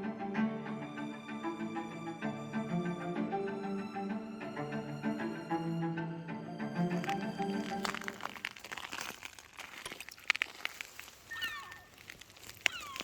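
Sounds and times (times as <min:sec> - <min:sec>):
bowed-string music: 0:00.0 - 0:08.7
sharp clicks and crackles: 0:07.0 - 0:13.0
animal giving gliding calls: 0:11.3 - 0:13.0.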